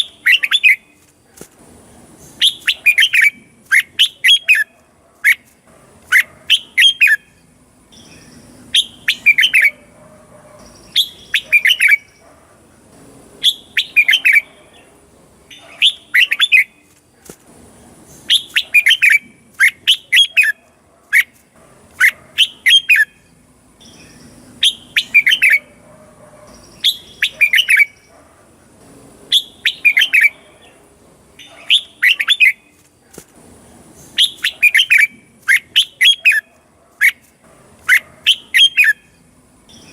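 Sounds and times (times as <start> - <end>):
bird singing whistled notes: 0.0 - 1.0, 2.3 - 4.7, 6.5 - 9.9, 10.6 - 12.2, 13.4 - 14.5, 15.5 - 16.9, 18.2 - 20.6, 22.0 - 25.7, 26.5 - 28.1, 29.3 - 30.4, 31.4 - 32.8, 34.0 - 37.2, 37.9 - 39.9.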